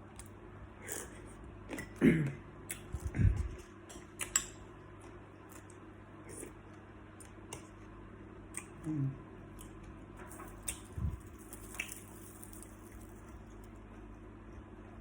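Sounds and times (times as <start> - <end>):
low mouth sounds: 8.6 - 9.3
shrimp shells crackling: 10.5 - 13.6.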